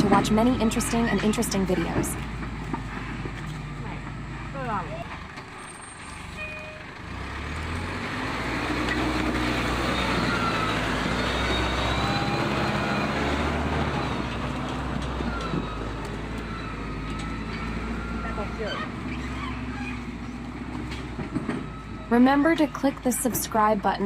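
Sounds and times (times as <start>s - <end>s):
truck engine under load: 0.0s - 24.0s.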